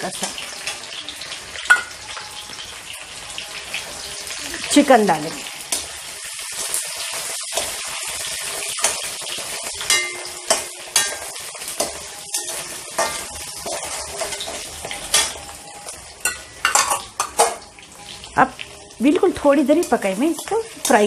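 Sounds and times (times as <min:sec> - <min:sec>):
chicken sizzling in hot oil: 0:00.0 - 0:21.0
metal spatula scraping pan: 0:09.8 - 0:15.5.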